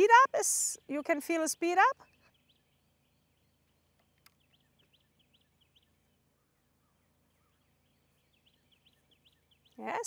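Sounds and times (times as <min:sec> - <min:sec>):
small bird chirping: 0:00.0 - 0:10.0.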